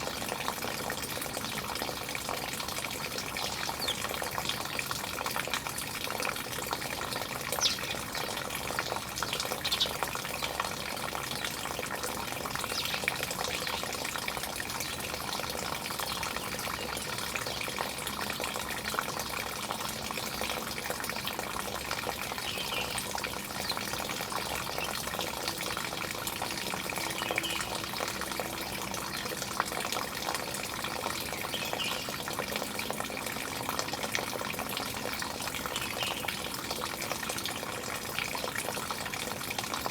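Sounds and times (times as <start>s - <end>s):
running water: 0.0s - 39.9s
bird chirps: 7.6s - 8.0s, 9.6s - 10.0s.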